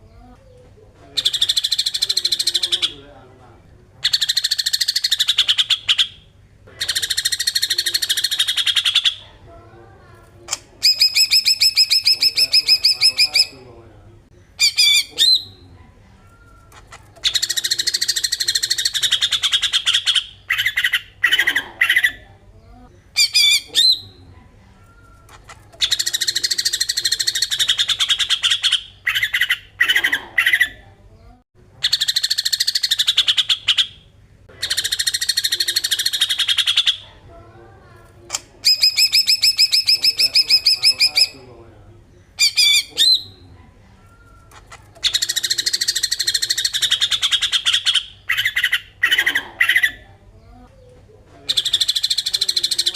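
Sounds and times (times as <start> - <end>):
bird buzzy chattering call: 4.0 - 9.2, 10.5 - 13.6, 31.8 - 37.0, 38.3 - 41.5.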